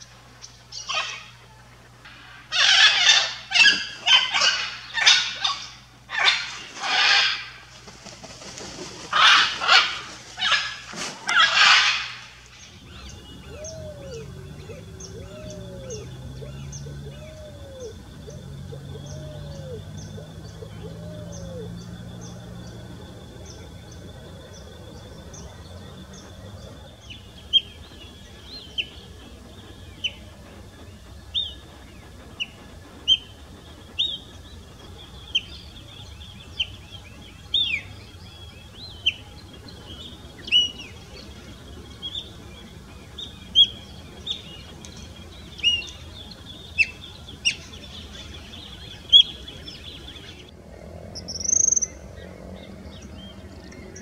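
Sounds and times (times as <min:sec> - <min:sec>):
sharp songbird calls: 0:02.1 - 0:30.3, 0:34.0 - 0:50.5, 0:51.2 - 0:52.0
pigeon cooing: 0:13.0 - 0:21.8.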